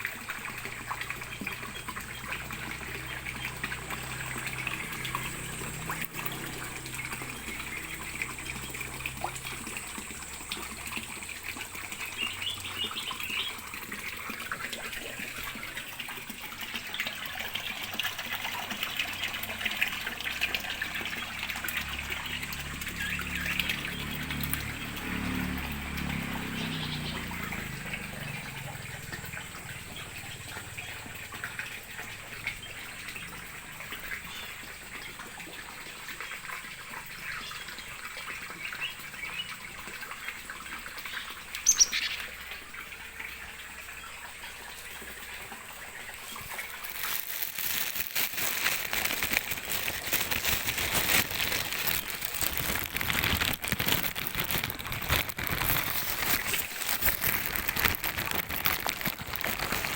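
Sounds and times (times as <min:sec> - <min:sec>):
water trickling and splashing: 0:00.0 - 0:59.9
faint bird chirps: 0:41.1 - 0:42.3.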